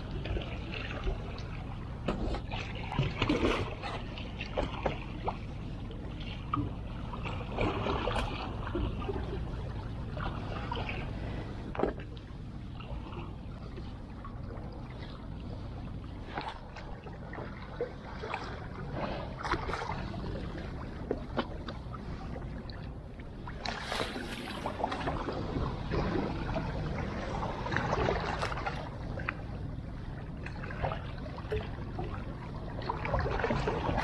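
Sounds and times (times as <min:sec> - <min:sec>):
steady low rumble: 0:00.0 - 0:34.0
water lapping at the shore: 0:00.0 - 0:34.0
rush of water: 0:23.5 - 0:29.4.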